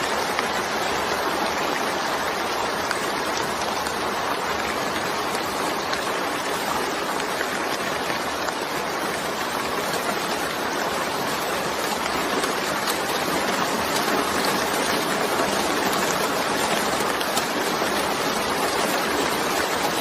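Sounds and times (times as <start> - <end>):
heavy rain hissing: 0.0 - 20.0
raindrops ticking: 0.0 - 20.0.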